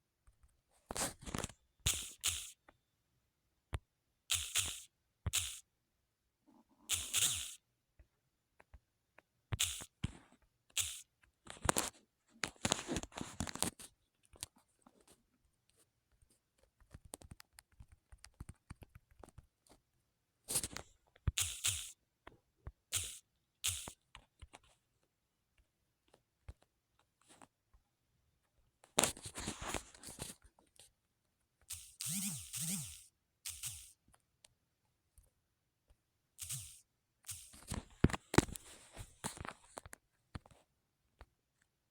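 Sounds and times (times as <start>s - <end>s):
small clicks: 0.3s - 2.8s, 3.7s - 5.6s, 6.9s - 7.6s, 9.5s - 14.6s, 16.2s - 19.8s, 20.5s - 22.0s, 22.9s - 24.7s, 31.6s - 34.0s, 36.4s - 38.6s.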